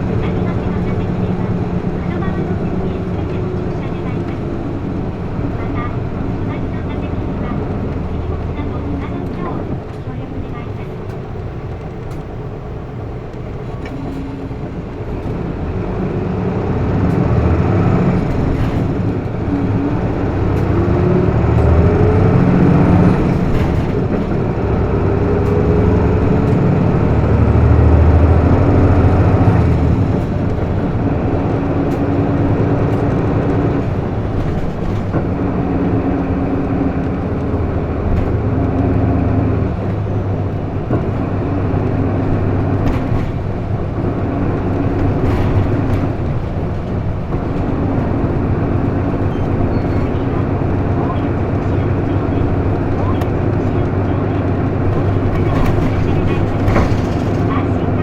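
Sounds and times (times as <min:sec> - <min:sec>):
bus diesel engine: 0:00.0 - 0:58.0
road noise: 0:00.0 - 0:58.0.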